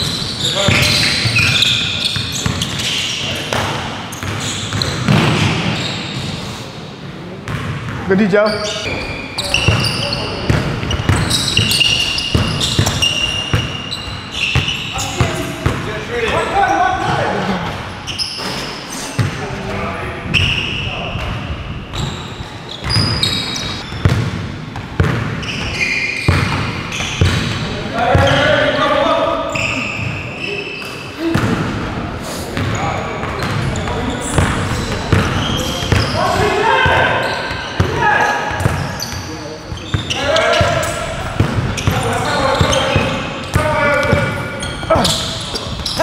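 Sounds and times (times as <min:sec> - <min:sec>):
sneakers squeaking on floor: 0:00.0 - 0:06.5, 0:07.5 - 0:31.7, 0:32.5 - 0:46.0
players' voices in echoing hall: 0:00.0 - 0:46.0.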